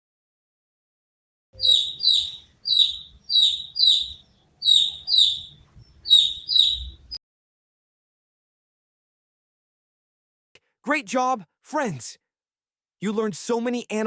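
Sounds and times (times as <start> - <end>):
chick peeping: 1.6 - 7.2.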